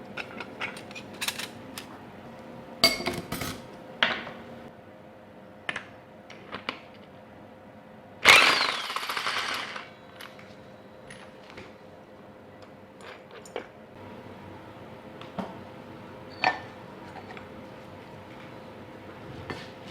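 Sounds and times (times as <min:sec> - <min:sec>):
power tool rattling burst: 0:08.2 - 0:09.9.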